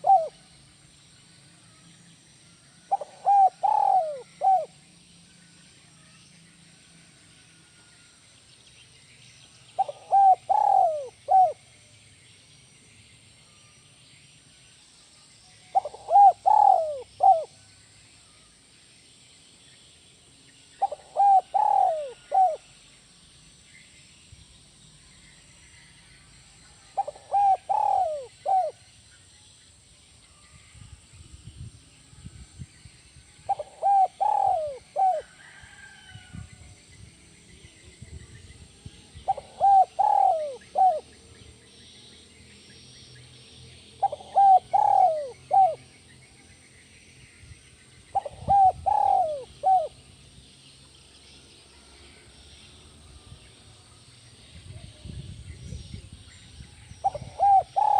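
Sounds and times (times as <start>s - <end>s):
dove cooing: 0.0s - 0.5s, 2.9s - 4.8s, 9.8s - 11.7s, 15.7s - 17.6s, 20.8s - 22.6s, 27.0s - 28.8s, 33.5s - 35.6s, 39.2s - 41.1s, 44.0s - 45.8s, 48.1s - 50.0s, 57.0s - 57.9s.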